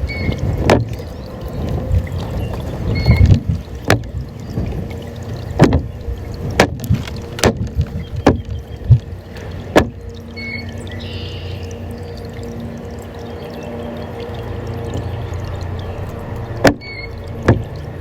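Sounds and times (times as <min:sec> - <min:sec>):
low rumbling noise: 0:00.0 - 0:18.0
sharp knocks: 0:05.6 - 0:05.9, 0:06.6 - 0:09.0, 0:09.7 - 0:10.0, 0:16.6 - 0:17.7.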